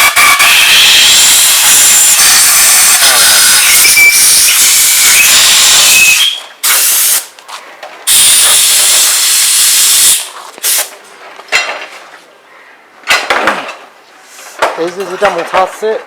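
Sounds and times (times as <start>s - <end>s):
compressed air hissing bursts: 0.0s - 7.3s, 8.1s - 10.9s.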